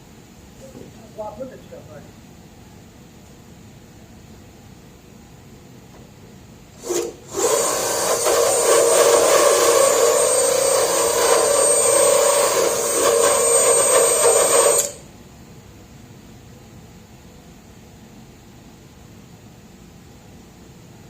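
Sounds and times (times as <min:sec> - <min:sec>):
rotary tool grinding metal: 0:06.8 - 0:15.0.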